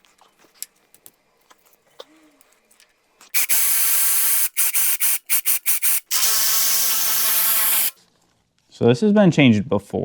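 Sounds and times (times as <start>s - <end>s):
cordless power tool whining: 6.0s - 8.0s.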